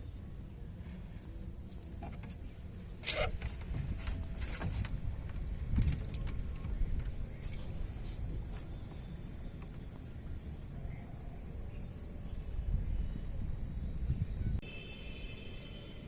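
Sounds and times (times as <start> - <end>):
insects chirring: 0.0 - 16.0
wind on microphone: 3.2 - 8.6, 12.3 - 14.6.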